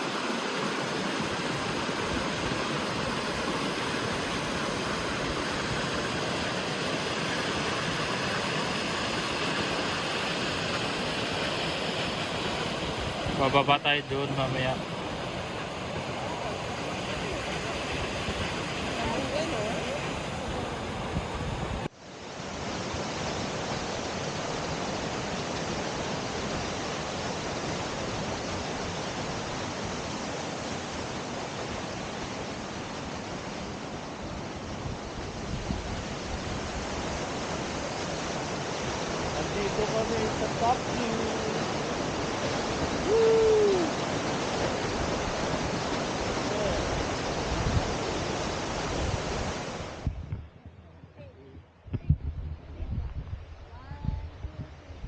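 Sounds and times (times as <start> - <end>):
waterfall rushing: 0.0 - 21.9, 36.3 - 50.0.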